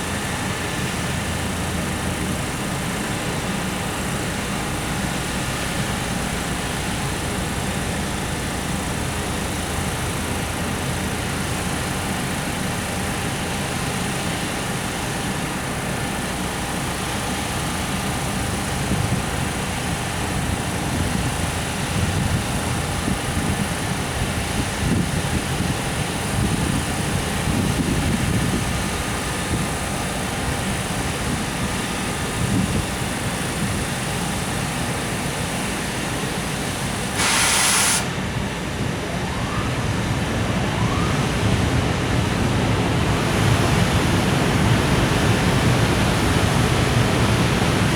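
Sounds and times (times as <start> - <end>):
train wheels rumbling on rail: 0.0 - 47.9
burst of hiss: 37.1 - 38.3.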